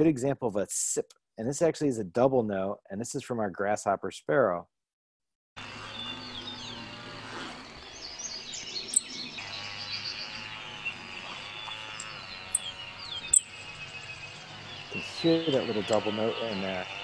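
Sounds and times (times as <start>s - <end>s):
birds chirping: 5.6s - 17.0s
chainsaw running: 5.6s - 17.0s.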